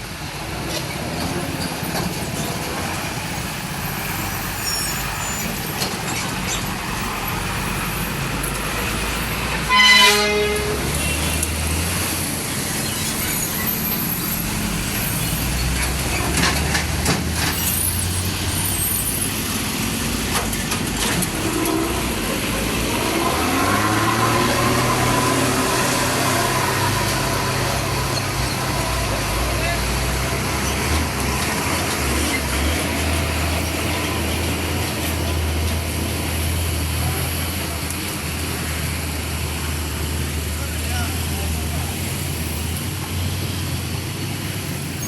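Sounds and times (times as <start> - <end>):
horn sounding: 9.5 - 11.6
engine note rising: 21.4 - 30.6.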